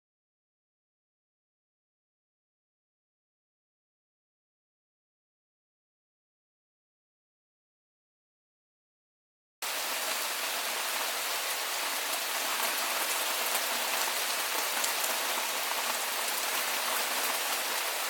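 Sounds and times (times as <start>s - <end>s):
steady rain falling: 9.6s - 18.0s.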